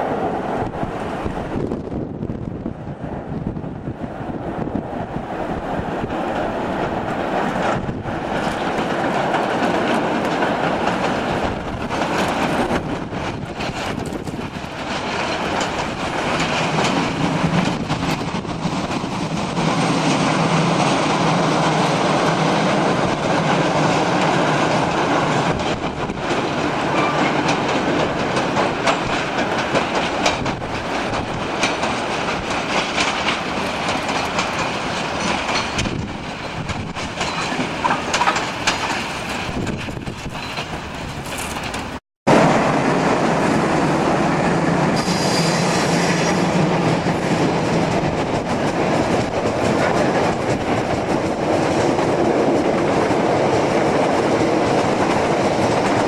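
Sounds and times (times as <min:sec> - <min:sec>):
freight train rolling past: 0:00.0 - 0:56.0
wheels clattering over rail joints: 0:06.0 - 0:42.4.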